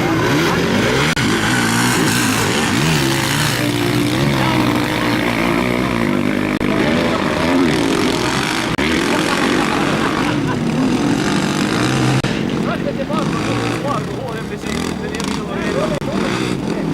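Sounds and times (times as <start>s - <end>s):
motocross bikes revving: 0.0s - 16.9s.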